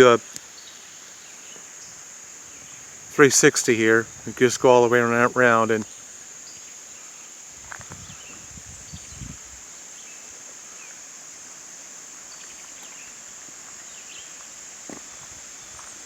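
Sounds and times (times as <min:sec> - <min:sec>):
insects trilling: 0:00.0 - 0:16.0
faint bird chirps: 0:05.8 - 0:11.0.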